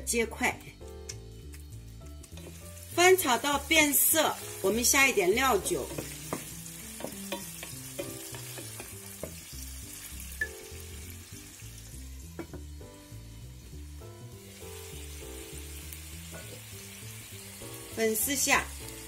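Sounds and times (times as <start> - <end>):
meat sizzling in frying pan: 0.1 - 19.0.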